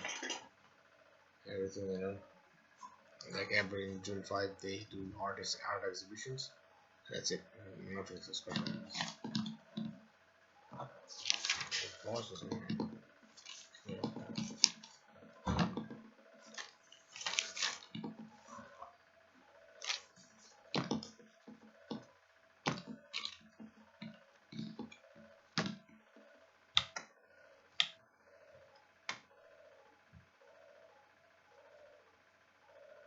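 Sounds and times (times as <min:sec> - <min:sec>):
faint steady hum: 0:00.0 - 0:33.0
rustling: 0:11.0 - 0:12.0, 0:16.4 - 0:18.8.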